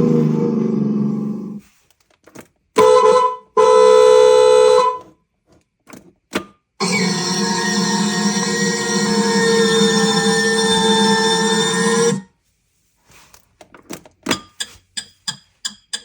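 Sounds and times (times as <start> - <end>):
car horn honking: 2.8 - 5.0.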